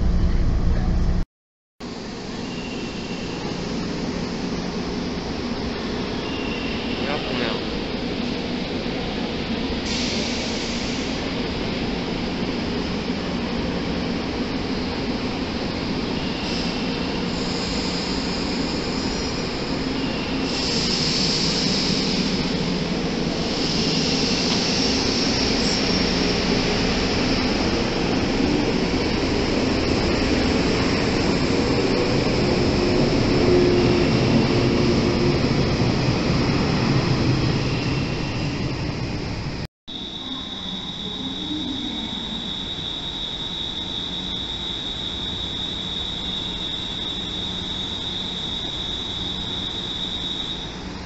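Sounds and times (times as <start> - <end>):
train wheels rumbling on rails: 2.9 - 39.6
high-pitched squeal: 39.9 - 50.8.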